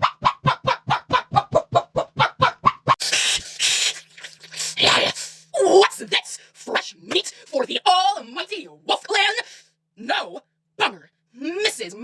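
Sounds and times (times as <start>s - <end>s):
dog yapping barks: 0.0s - 3.0s.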